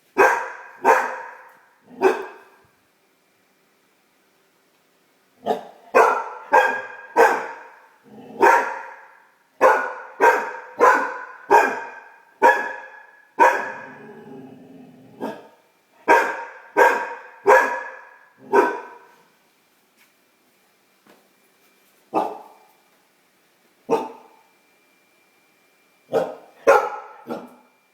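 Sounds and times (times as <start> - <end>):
puppy barking: 0.2 - 2.6, 5.4 - 14.0, 15.2 - 19.2, 22.1 - 22.7, 23.9 - 24.4, 26.1 - 27.7.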